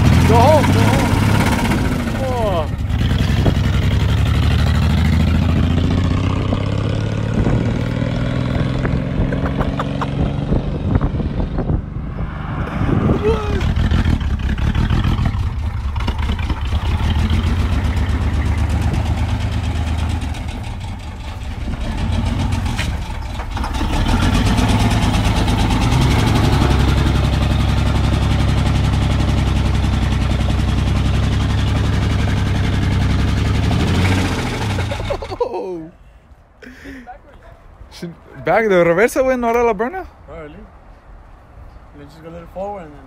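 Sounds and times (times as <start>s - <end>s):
pickup engine running rough: 0.0s - 12.1s, 13.4s - 35.3s.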